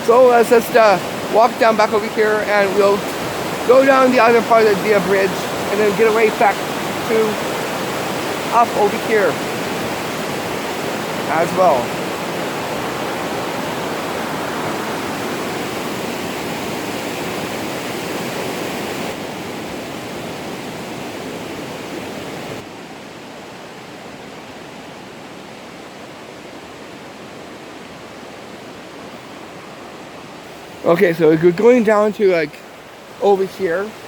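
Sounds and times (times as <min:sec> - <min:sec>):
water rushing from falls: 0:00.0 - 0:34.0.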